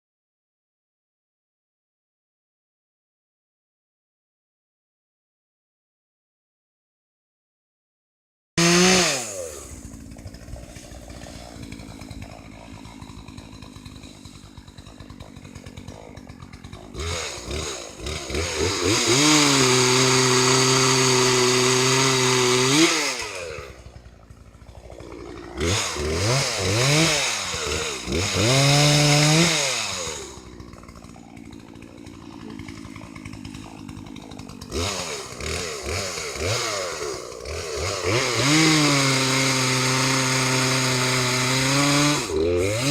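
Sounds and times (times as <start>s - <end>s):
chainsaw idling and revving: 8.6s - 42.9s.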